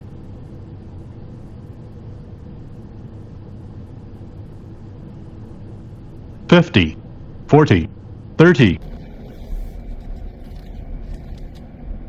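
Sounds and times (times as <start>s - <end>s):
jet engines and airflow rumble: 0.0s - 12.0s.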